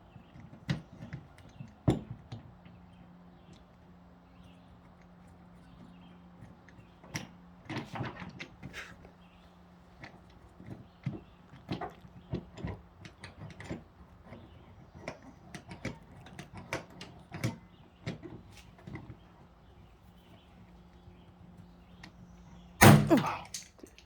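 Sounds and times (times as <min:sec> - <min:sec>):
loud sharp pop: 0:22.8 - 0:23.3.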